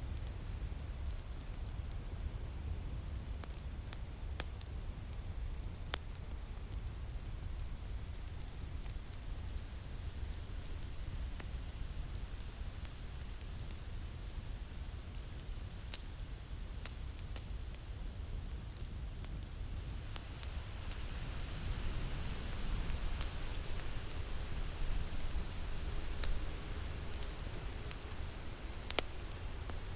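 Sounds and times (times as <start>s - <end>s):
wood fire crackling and popping: 0.0s - 29.9s
wind rumble: 19.7s - 29.9s.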